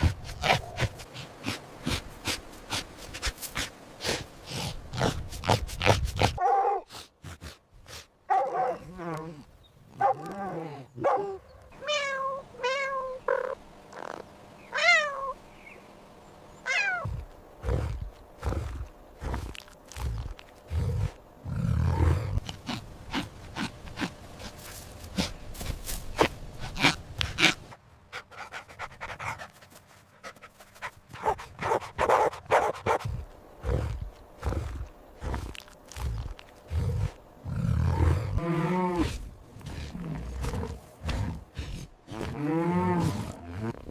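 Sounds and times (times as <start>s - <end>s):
cat meowing: 11.8s - 13.5s, 14.8s - 15.4s
dog panting: 26.6s - 33.0s.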